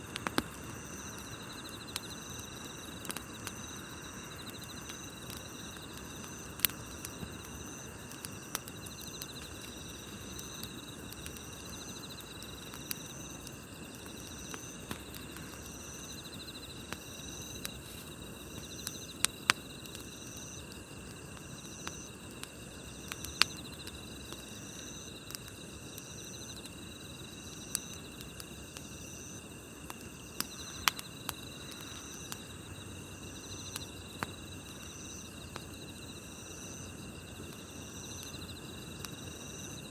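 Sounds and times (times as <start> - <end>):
campfire crackling and popping: 0.0 - 39.9
insect chirping: 0.0 - 39.9
insect trilling: 0.2 - 39.9.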